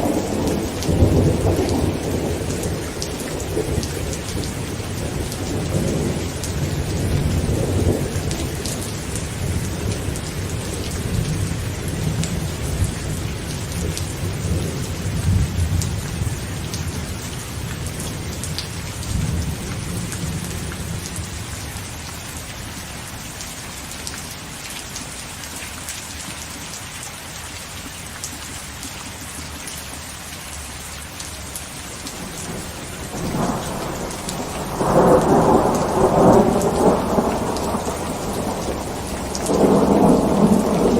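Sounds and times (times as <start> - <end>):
rolling thunder: 0.0 - 21.1, 32.2 - 40.9
heavy rain on a tent: 0.0 - 40.9.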